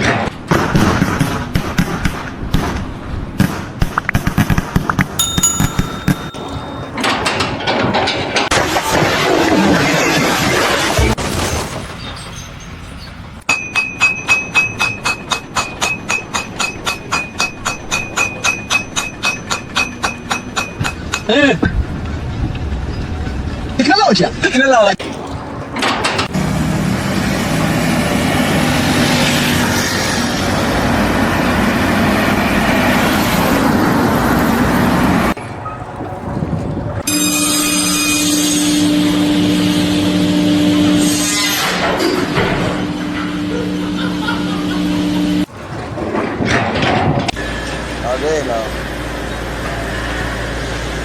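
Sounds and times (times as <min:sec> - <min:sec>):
hammer ringing on metal: 0:05.2 - 0:07.0.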